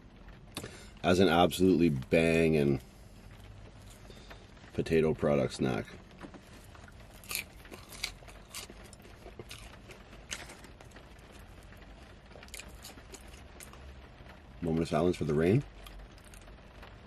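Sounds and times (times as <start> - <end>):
faint background hiss: 0.0 - 17.0
fries crunching while chewed: 3.7 - 4.4, 5.8 - 14.0, 15.2 - 16.9.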